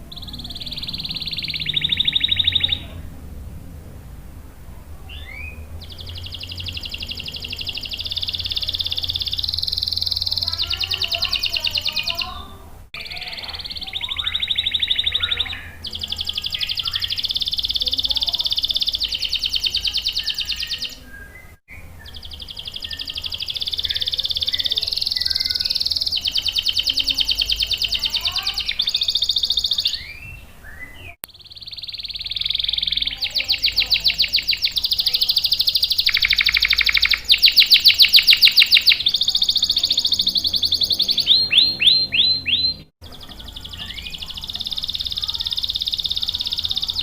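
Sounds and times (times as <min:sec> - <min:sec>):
canary singing trills: 0:00.0 - 0:03.2, 0:05.0 - 0:47.0
low steady hum: 0:00.0 - 0:14.6.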